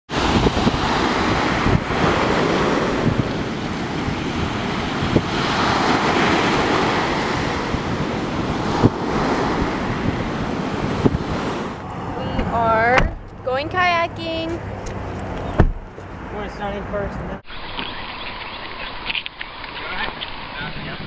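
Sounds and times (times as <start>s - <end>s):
surf rushing: 0.1s - 12.3s
wind buffeting microphone: 0.1s - 16.8s.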